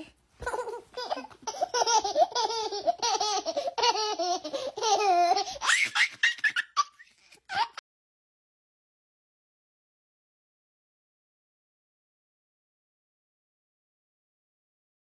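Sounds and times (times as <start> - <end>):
young child laughing: 0.4 - 7.8
child squealing: 5.6 - 6.2.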